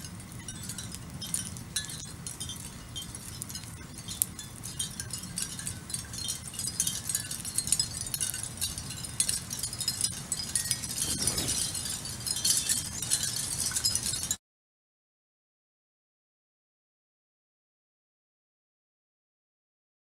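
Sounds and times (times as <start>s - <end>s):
wind chimes tinkling: 0.0s - 14.4s.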